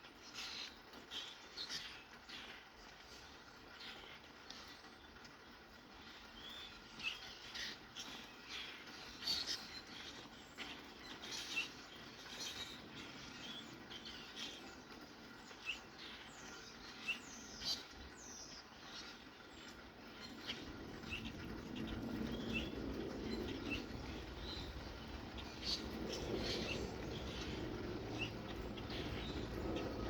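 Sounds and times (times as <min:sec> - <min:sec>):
light rain hiss: 0:00.0 - 0:30.0
birds chirping: 0:00.1 - 0:30.0
low rumble: 0:20.6 - 0:30.0.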